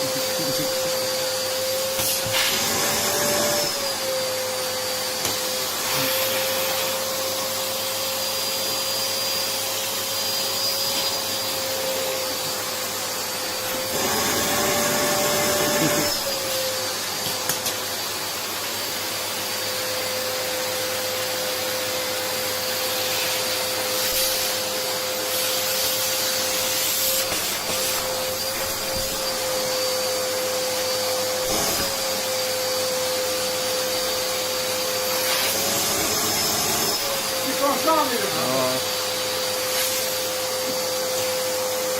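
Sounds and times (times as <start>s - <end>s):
vacuum cleaner motor whining: 0.0s - 41.9s.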